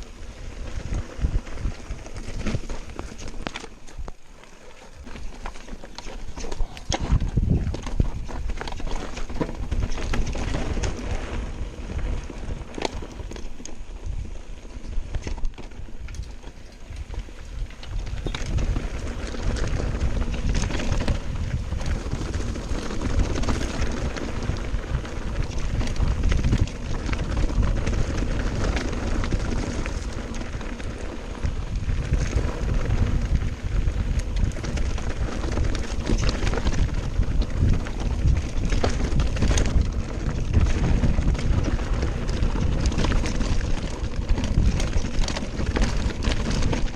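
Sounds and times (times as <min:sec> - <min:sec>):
bike rattling over stones: 0:00.0 - 0:46.9
wind rumbling on microphone: 0:00.0 - 0:46.9.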